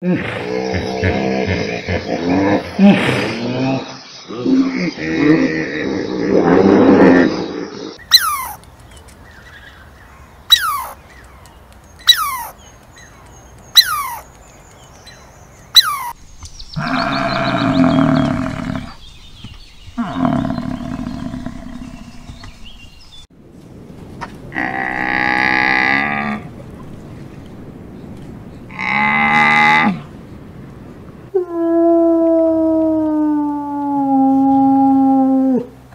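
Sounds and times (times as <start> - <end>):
squirrel chirping: 8.0 - 8.6, 9.2 - 17.2.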